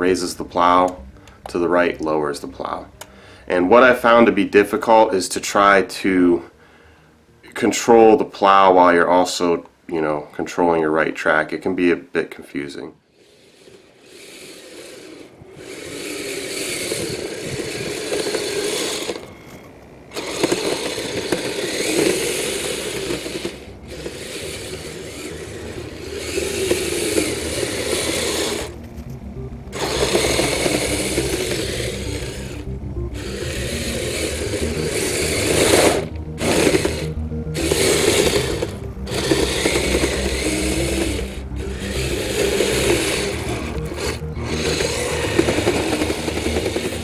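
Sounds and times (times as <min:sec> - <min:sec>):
electric motors and gears whirring: 0:13.1 - 0:47.0.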